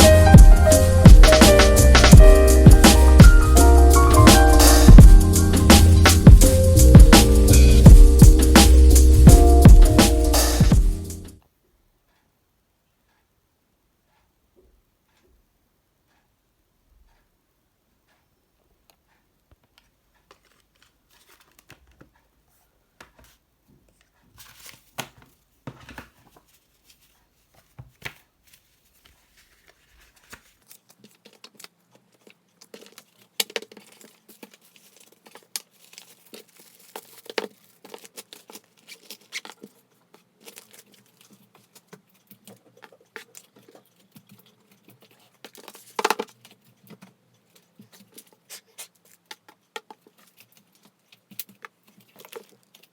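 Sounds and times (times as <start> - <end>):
packaging crinkling and tearing: 24.4 - 52.9.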